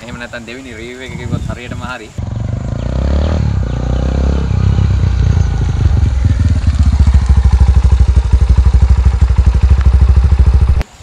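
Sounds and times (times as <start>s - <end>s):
motorcycle engine running: 2.2s - 10.8s.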